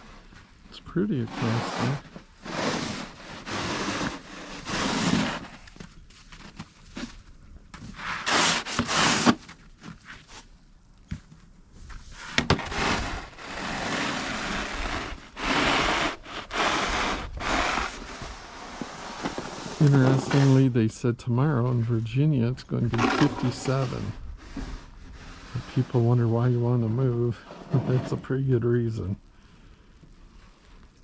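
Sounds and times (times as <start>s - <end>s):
wet snow crunching: 0.0s - 7.3s, 11.8s - 20.7s.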